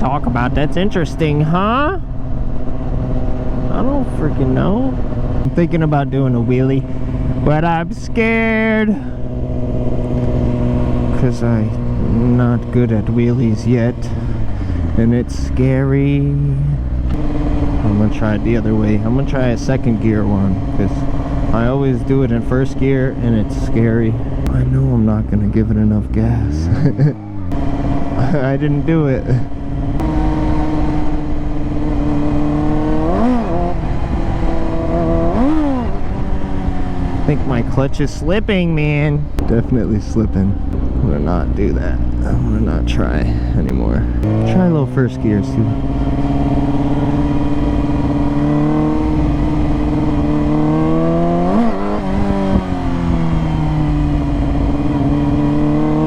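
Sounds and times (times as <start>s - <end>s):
motorcycle engine revving: 0.0s - 56.0s
person speaking: 11.1s - 17.0s, 17.8s - 27.3s, 37.2s - 45.8s.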